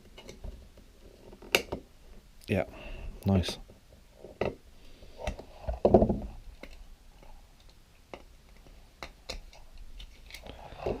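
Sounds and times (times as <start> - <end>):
small tools and plastic parts clicking: 7.6 - 11.0.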